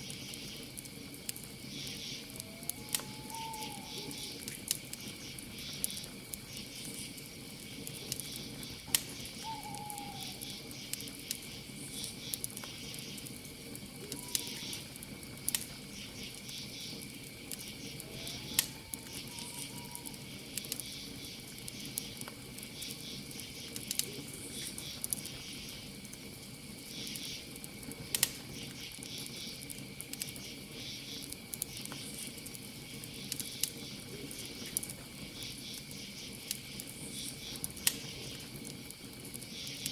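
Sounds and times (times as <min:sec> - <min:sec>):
campfire crackling and popping: 0:00.0 - 0:39.9
crickets chirping: 0:00.0 - 0:39.9
faint whistle-like calls: 0:01.7 - 0:04.5, 0:09.2 - 0:11.0, 0:14.0 - 0:14.9, 0:17.6 - 0:21.2.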